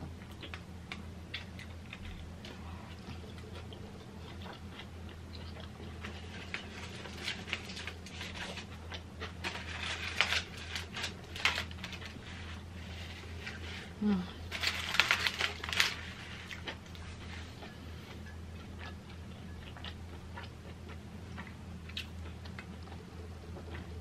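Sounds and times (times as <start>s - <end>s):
low steady hum: 0.0s - 24.0s
chewing with wet mouth clicks: 0.2s - 6.2s, 17.6s - 24.0s.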